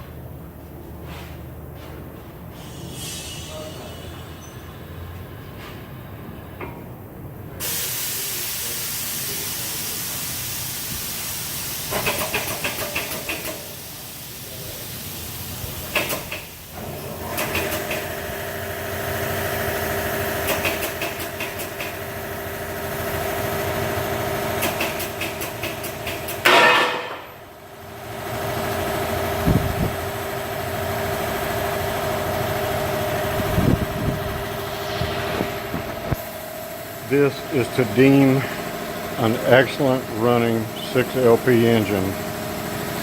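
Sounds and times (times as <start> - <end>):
air pump hissing: 7.6 - 18.2, 24.6 - 26.5
steady hum: 29.4 - 43.0.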